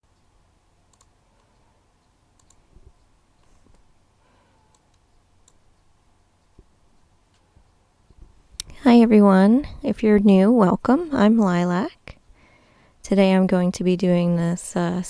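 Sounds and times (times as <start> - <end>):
faint clicks: 0.9 - 3.9, 4.7 - 8.8.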